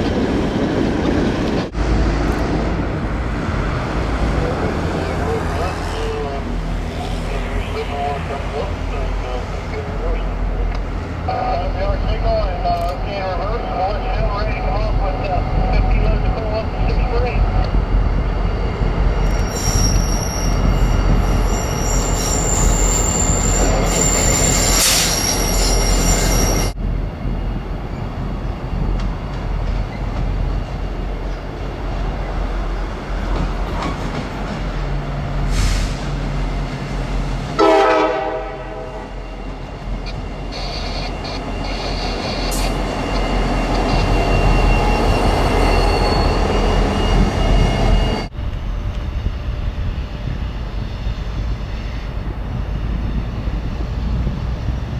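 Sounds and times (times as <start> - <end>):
train rolling past: 0.0 - 54.9
train wheel squeal: 19.2 - 26.8, 38.9 - 54.2
train horn blast: 37.6 - 39.2.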